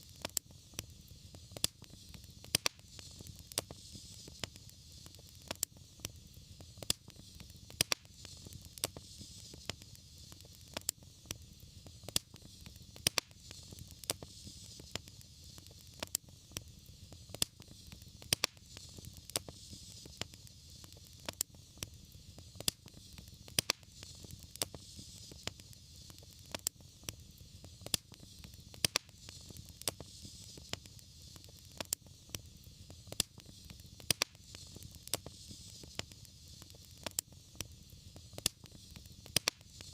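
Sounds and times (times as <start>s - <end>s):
fire hiss and rumble: 0.0s - 39.9s
fireplace fire crackling and popping: 0.0s - 39.9s.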